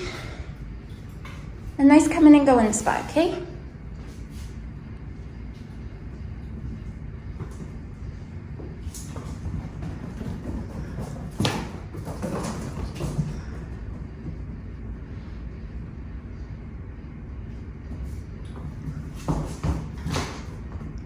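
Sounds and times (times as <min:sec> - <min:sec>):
steady low hum: 0:00.0 - 0:21.0
scuffling and clatter: 0:05.4 - 0:14.6, 0:17.9 - 0:21.0.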